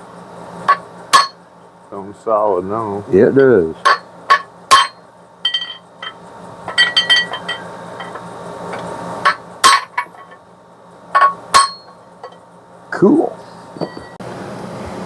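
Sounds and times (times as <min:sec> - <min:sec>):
hammer tapping metal drift: 0:00.6 - 0:10.4, 0:11.1 - 0:12.4.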